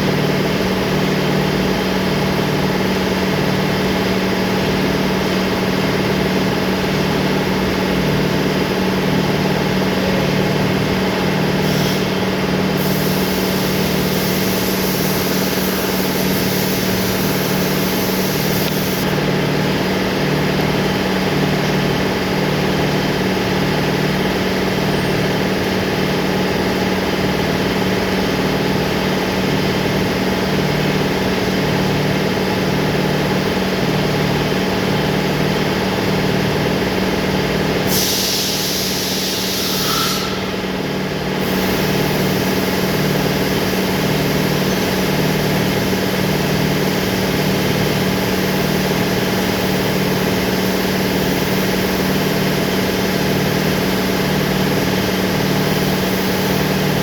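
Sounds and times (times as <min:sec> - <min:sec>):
spray hiss: 0:12.8 - 0:19.1, 0:37.9 - 0:40.8, 0:41.4 - 0:52.3.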